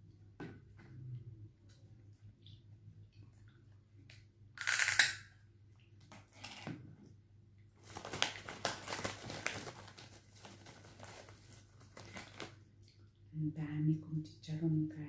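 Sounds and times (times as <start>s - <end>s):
crunching of fried pork rinds: 4.6s - 5.2s.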